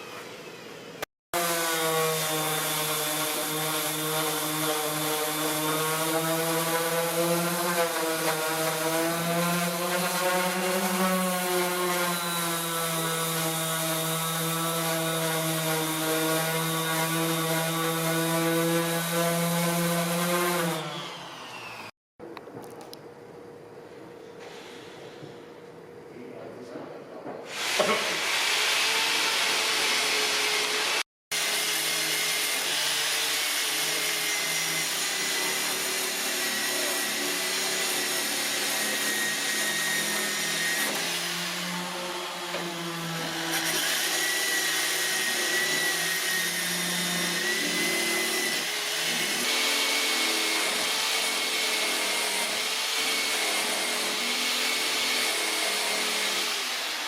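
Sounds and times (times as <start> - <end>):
electric power tool motor whine: 20.8 - 21.9.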